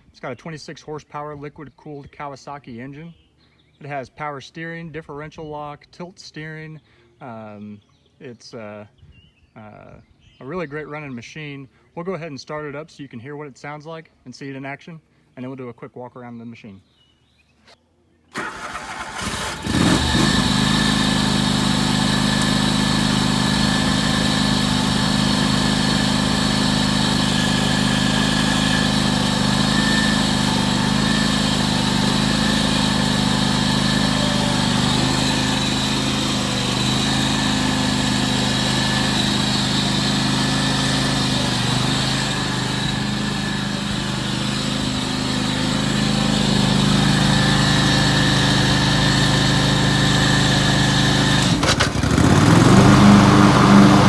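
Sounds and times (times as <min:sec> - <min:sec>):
engine starter cranking: 0:18.3 - 0:54.0
tractor engine running: 0:18.4 - 0:54.0.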